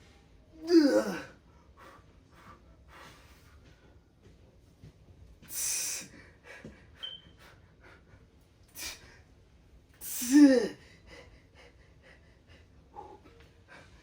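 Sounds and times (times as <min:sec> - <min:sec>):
man breathing hard: 0:01.0 - 0:03.9, 0:05.4 - 0:09.4, 0:10.0 - 0:14.0.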